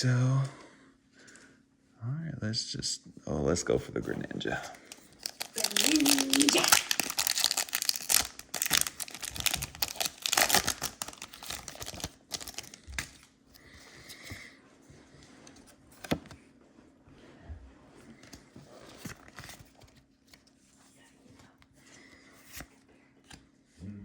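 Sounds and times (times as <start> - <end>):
foil wrapper crinkling: 4.8 - 13.3.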